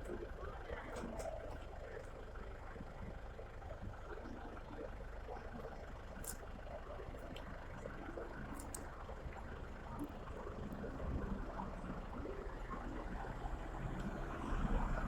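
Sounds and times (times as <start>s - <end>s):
low background rumble: 3.0s - 15.0s.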